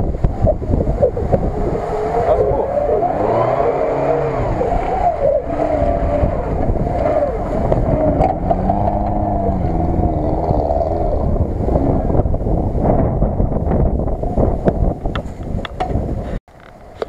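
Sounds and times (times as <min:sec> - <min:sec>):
wind buffeting microphone: 0:00.0 - 0:17.0
car engine revving: 0:00.1 - 0:13.7.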